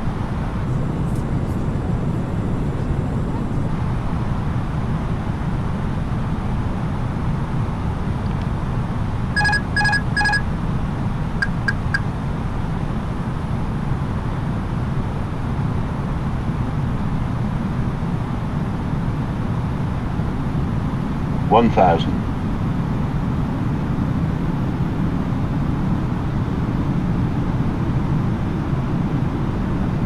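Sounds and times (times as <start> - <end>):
airliner cabin noise: 0.0 - 4.3, 8.0 - 12.6, 20.5 - 23.0
short beeps: 9.4 - 10.4, 11.4 - 12.0.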